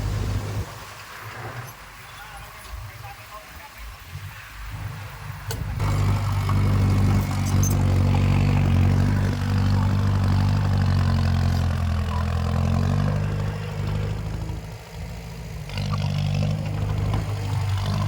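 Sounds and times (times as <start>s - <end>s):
heavy diesel engine running: 0.0s - 0.9s, 5.0s - 18.0s.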